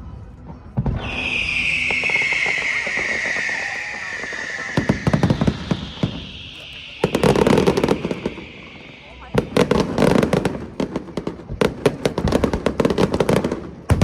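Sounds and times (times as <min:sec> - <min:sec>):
firework pops and crackles: 0:00.7 - 0:14.0
firework whistle falling in pitch: 0:01.0 - 0:11.0.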